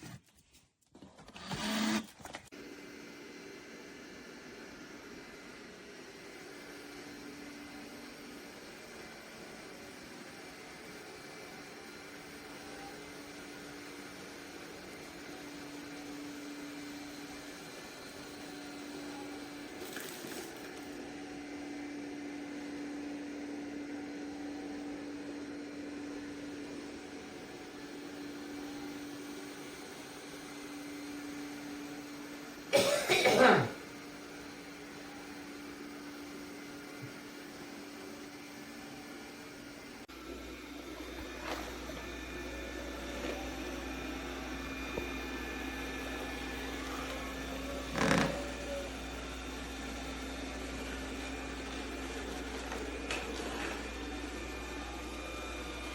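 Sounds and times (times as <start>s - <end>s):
robot vacuum motor whirring: 1.2s - 3.6s, 40.2s - 55.9s
robot vacuum humming: 1.3s - 55.9s.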